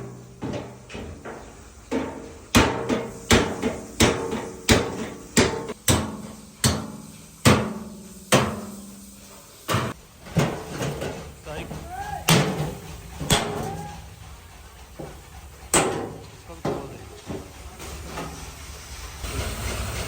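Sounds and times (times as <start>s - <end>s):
hammer striking steel: 1.9s - 8.8s, 11.7s - 14.0s.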